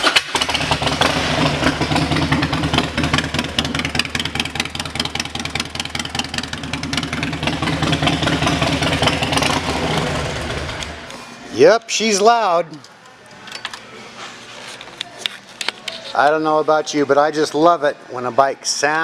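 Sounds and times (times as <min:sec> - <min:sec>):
motorcycle engine idling: 0:00.3 - 0:11.1.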